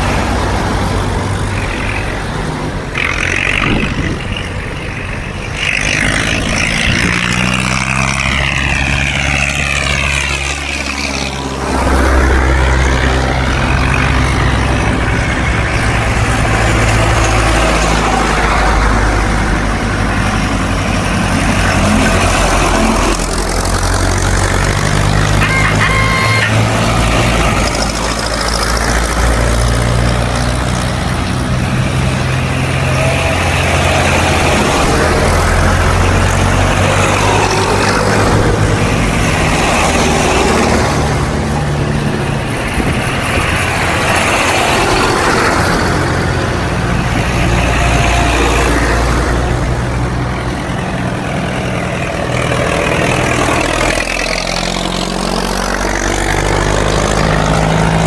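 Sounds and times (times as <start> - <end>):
tractor engines passing: 0.0 - 58.0.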